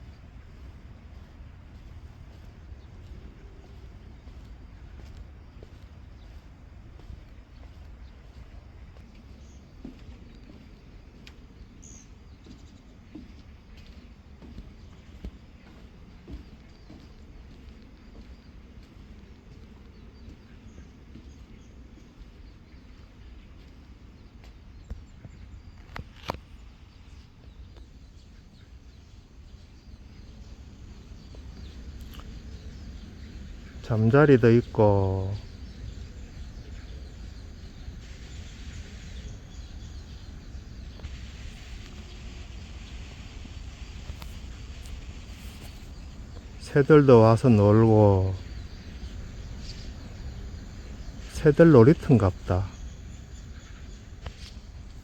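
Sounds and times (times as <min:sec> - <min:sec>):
steady low rumble: 0:00.0 - 0:25.8
faint birds: 0:00.0 - 0:55.0
faint insects: 0:00.0 - 0:55.0.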